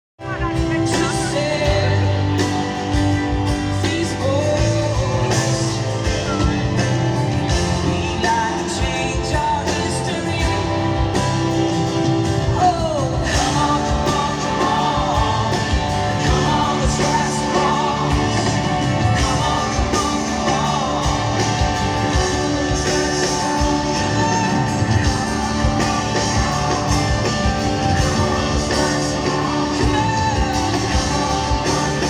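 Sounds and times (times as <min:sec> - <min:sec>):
person singing: 0:00.2 - 0:06.9, 0:07.5 - 0:11.6, 0:12.5 - 0:32.0
guitar: 0:00.2 - 0:32.0
drum beat: 0:12.8 - 0:32.0.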